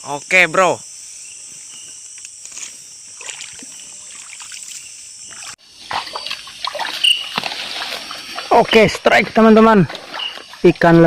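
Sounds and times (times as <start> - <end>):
night insects chorus: 0.0 - 11.0
water splashes: 3.2 - 11.0.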